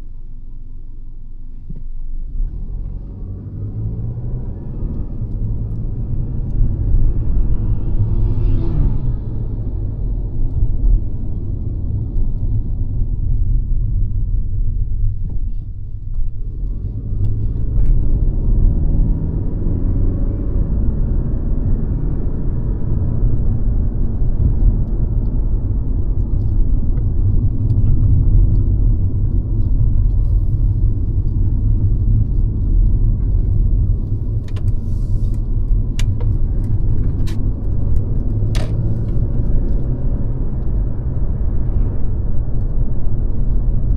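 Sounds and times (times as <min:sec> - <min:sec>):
car engine and tyre noise: 0:00.0 - 0:43.9.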